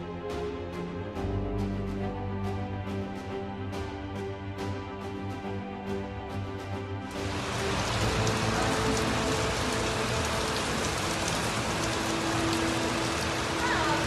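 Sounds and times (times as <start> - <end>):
heavy rain pouring: 7.0 - 14.0
raindrop impacts: 7.1 - 14.0.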